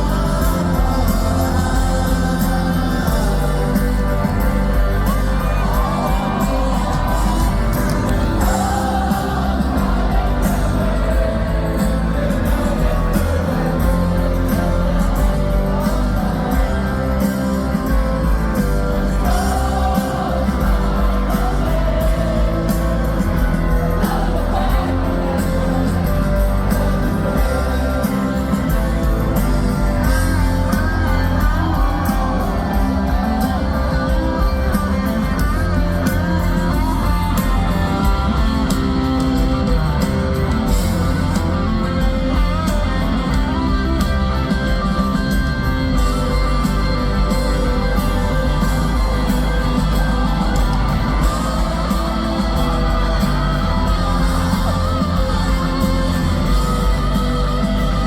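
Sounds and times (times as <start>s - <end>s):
electric guitars: 0.0s - 58.0s
live rock band playing: 0.0s - 58.0s.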